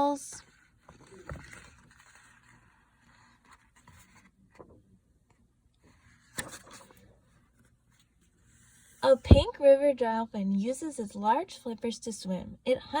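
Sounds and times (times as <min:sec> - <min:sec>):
book pages rustling: 0:00.4 - 0:04.8, 0:05.8 - 0:09.5.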